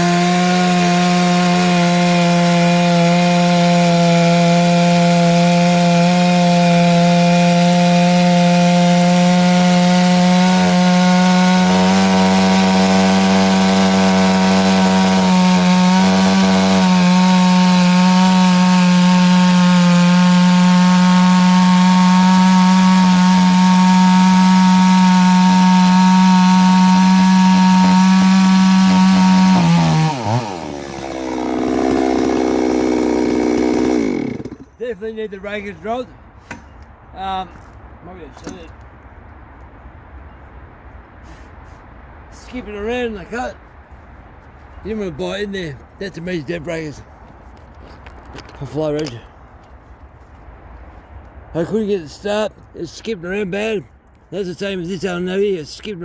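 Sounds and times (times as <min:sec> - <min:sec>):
chainsaw cutting wood: 0:00.0 - 0:34.8.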